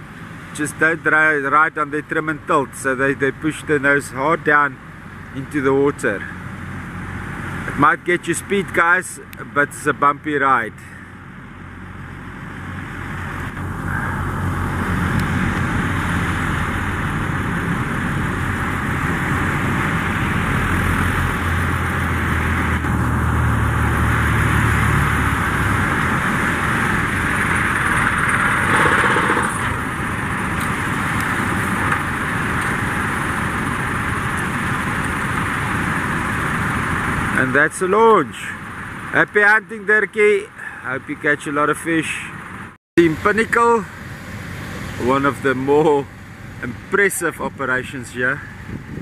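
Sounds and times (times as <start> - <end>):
outboard engines running hard: 0.0 - 39.6, 40.5 - 41.0
steady rushing noise: 12.1 - 39.2.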